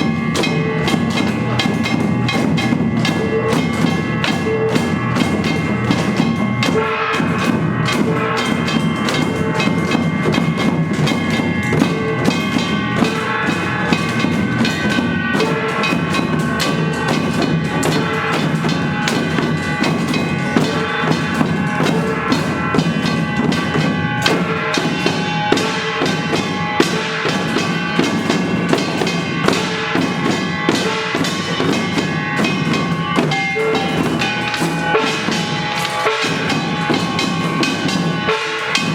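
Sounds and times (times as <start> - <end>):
drums beaten in fast rhythm: 0.0 - 38.9
ringing gongs: 0.0 - 38.9.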